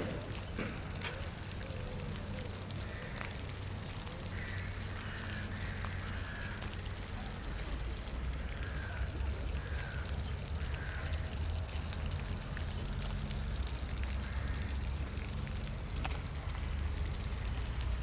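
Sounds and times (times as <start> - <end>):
faint distant voices: 0.0 - 3.3, 3.9 - 12.9
distant traffic rumble: 0.0 - 18.0.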